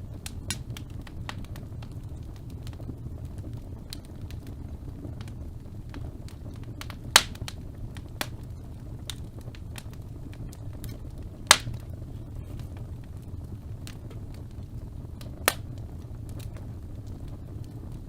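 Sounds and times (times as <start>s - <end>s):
fire crackling in fireplace: 0.0s - 18.0s
loud sharp pops: 6.8s - 7.6s, 10.8s - 11.9s, 15.4s - 15.7s.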